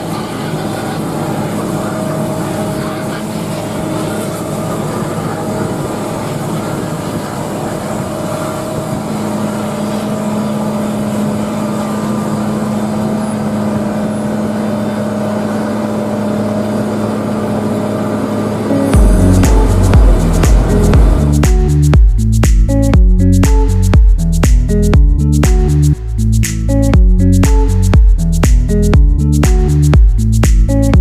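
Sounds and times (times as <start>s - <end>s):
machinery hum: 0.0s - 31.0s
deep steady tone: 8.0s - 31.0s.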